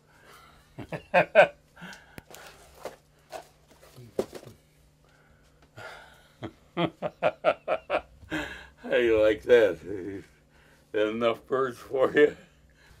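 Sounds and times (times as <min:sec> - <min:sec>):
faint low hum: 0:00.0 - 0:13.0
people talking: 0:08.8 - 0:10.3, 0:11.0 - 0:12.5.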